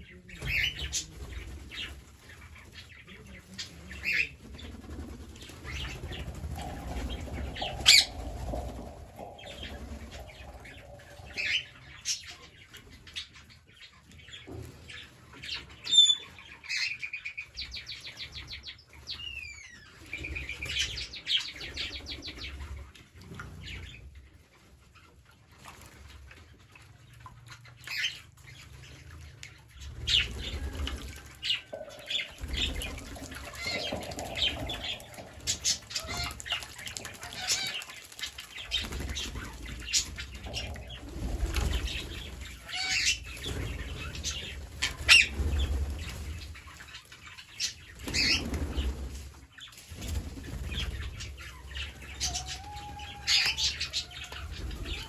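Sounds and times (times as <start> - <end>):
parrots fluttering and scuffling: 0.3 - 12.2, 29.8 - 55.0.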